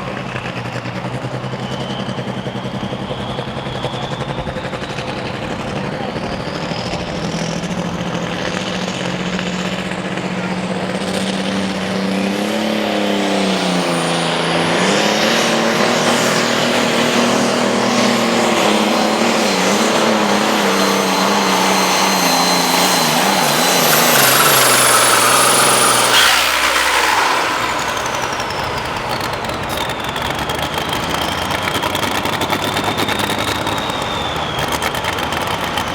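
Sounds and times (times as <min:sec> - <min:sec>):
tractor engine labouring: 0:00.0 - 0:35.9
turbo whine: 0:00.0 - 0:35.9.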